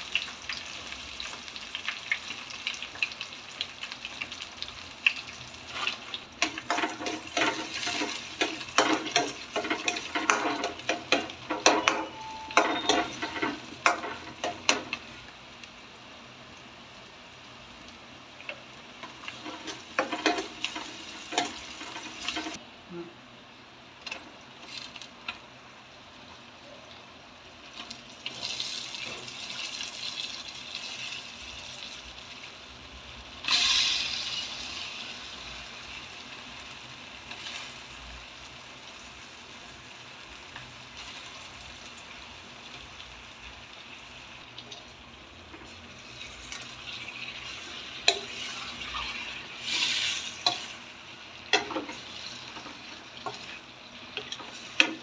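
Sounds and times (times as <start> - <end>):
food sizzling in a pan: 0.0 - 22.6, 24.4 - 55.0
spatula knocking against pan: 8.5 - 15.0.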